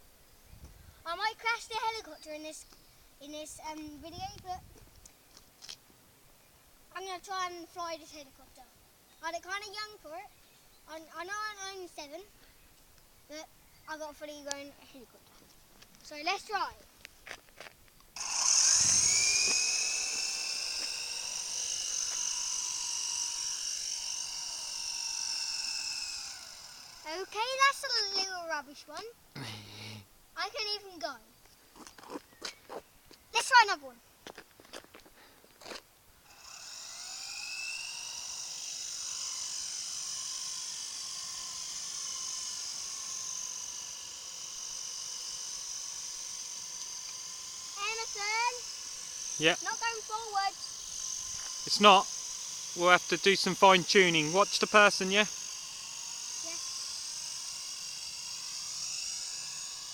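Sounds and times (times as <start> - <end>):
model helicopter rotor whining: 1.1 - 5.0, 6.9 - 12.6, 16.0 - 16.9, 18.2 - 29.2, 30.4 - 31.2, 33.4 - 33.9, 36.2 - 59.9.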